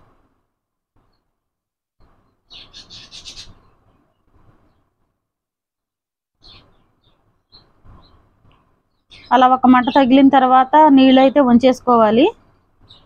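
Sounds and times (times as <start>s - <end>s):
faint low background noise: 0.0s - 13.0s
bird chirping: 2.3s - 4.9s, 6.4s - 8.3s, 8.9s - 11.8s, 12.8s - 13.0s.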